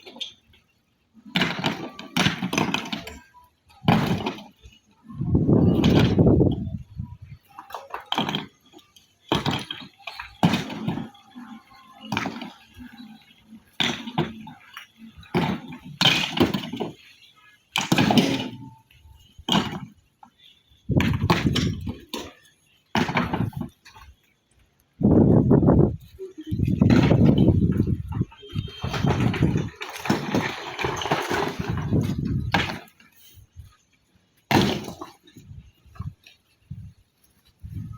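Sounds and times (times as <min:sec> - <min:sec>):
stone pieces crashing down: 0:07.8 - 0:11.2, 0:12.0 - 0:18.7, 0:21.0 - 0:23.8, 0:28.8 - 0:33.2, 0:34.5 - 0:35.7.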